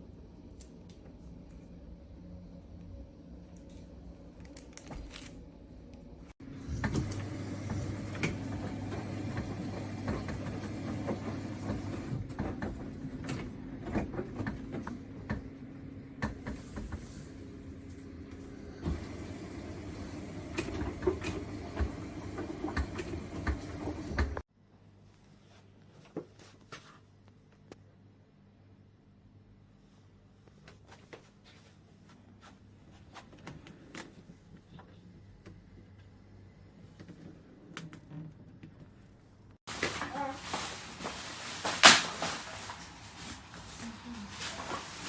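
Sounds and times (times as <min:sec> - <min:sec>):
freezer humming: 0:00.3 - 0:24.4.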